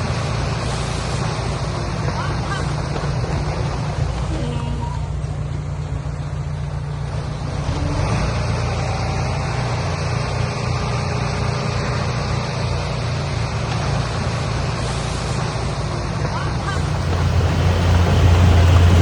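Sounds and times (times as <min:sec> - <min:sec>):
heavy diesel engine rumbling: 0:16.6 - 0:19.0.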